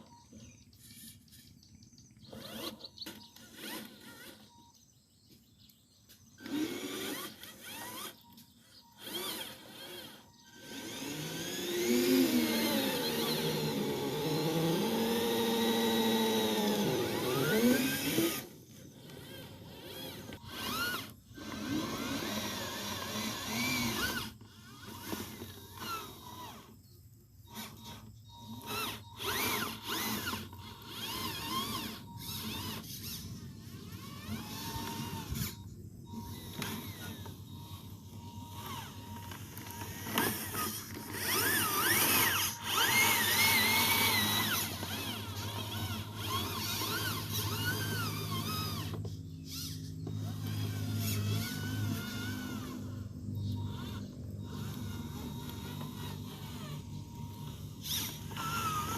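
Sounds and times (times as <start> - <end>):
small electric motor whining: 0.0 - 58.9.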